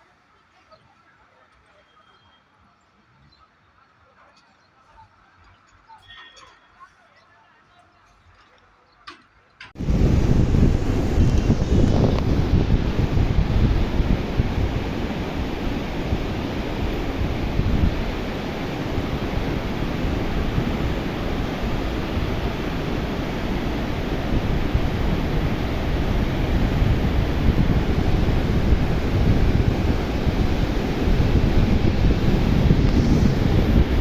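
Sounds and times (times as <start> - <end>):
flood water rushing: 9.8 - 34.0
wind buffeting microphone: 9.8 - 34.0.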